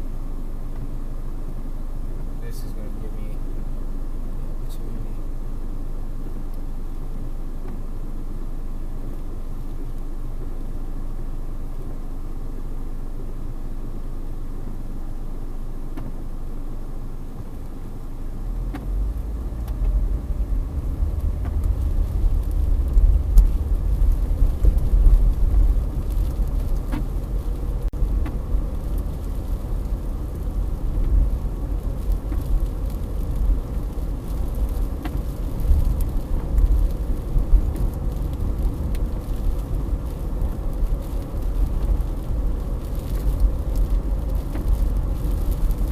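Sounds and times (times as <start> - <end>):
faint ticks: 7.6 - 7.9, 18.6 - 20.0, 21.1 - 45.9
wind gusts buffeting microphone: 19.9 - 45.9.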